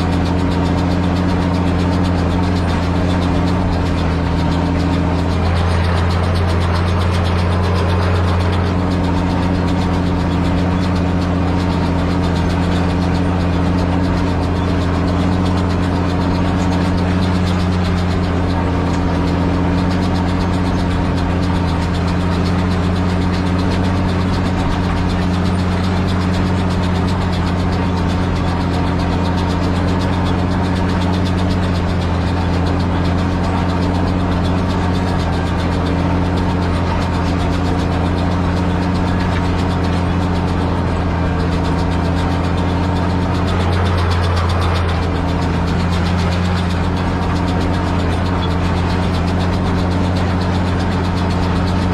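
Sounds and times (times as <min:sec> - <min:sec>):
tractor engine running steadily: 0:00.0 - 0:51.9.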